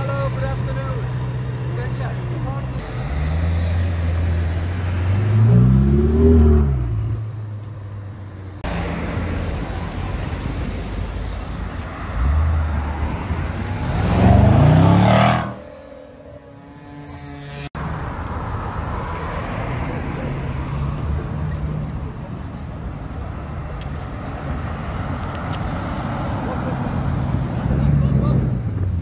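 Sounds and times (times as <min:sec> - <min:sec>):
sports car engines revving: 0:00.0 - 0:17.8, 0:23.9 - 0:29.0
traffic noise: 0:00.0 - 0:29.0.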